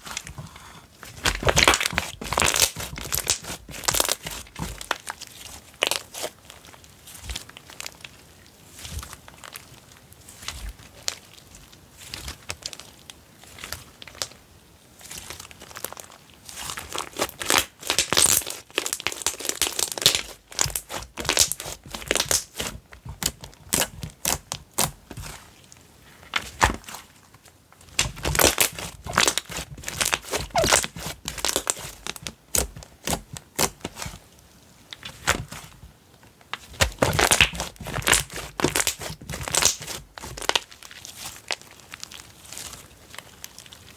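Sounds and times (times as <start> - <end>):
slime squished by hand: 0.0 - 8.1, 15.0 - 25.6, 26.3 - 27.2, 27.9 - 34.2, 34.9 - 35.8, 36.5 - 43.8.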